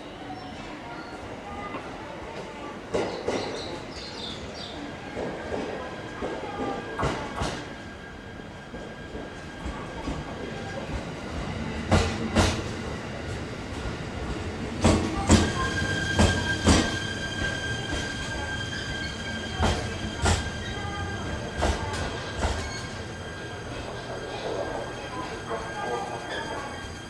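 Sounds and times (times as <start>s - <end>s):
train wheels knocking on rail joints: 2.9s - 3.7s, 5.1s - 7.7s, 11.8s - 12.7s, 13.8s - 18.6s, 19.4s - 22.9s.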